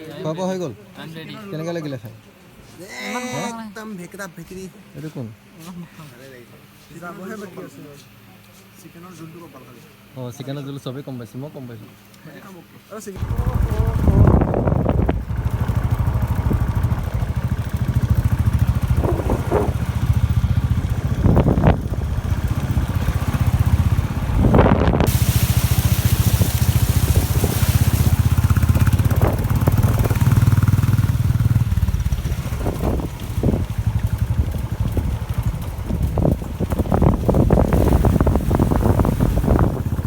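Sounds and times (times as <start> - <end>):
motorcycle engine running: 13.2 - 40.0
wind rushing over microphone: 13.2 - 40.0.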